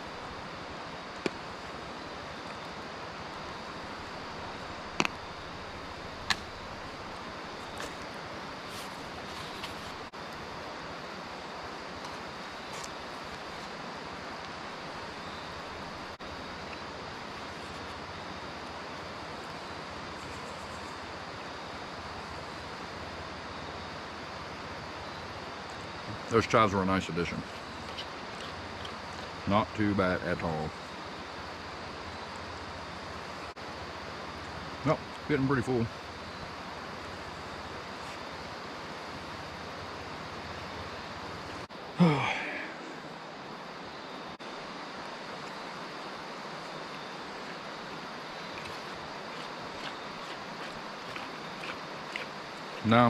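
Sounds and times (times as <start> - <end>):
outdoor wind hiss: 0.0 - 53.0
man groaning: 42.0 - 43.0.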